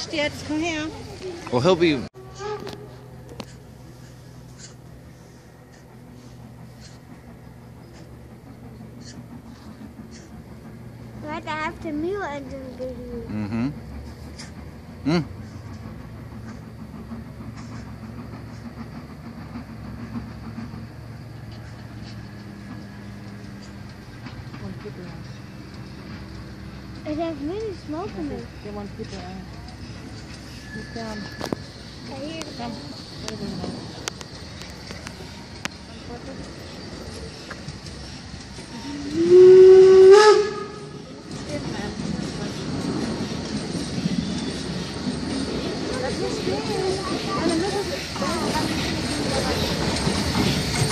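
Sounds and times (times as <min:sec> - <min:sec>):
train low hum: 0:00.0 - 0:50.9
steam locomotive whistle blast: 0:02.2 - 0:03.0, 0:38.7 - 0:41.0.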